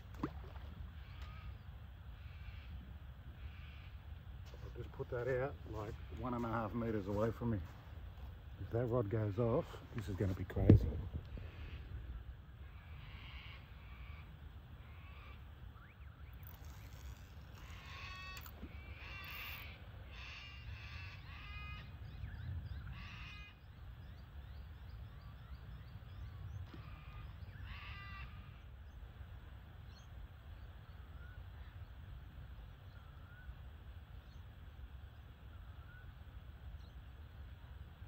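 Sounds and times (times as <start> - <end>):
low rumble of wind and water: 0.0 - 38.0
crow-like bird cawing: 12.6 - 15.4, 16.7 - 21.9, 22.9 - 23.6, 26.7 - 28.6.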